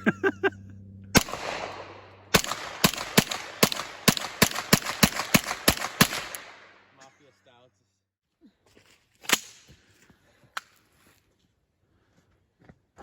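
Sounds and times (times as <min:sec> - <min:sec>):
rapid gunfire: 0:01.2 - 0:06.8
gunshots with echo: 0:01.2 - 0:07.0.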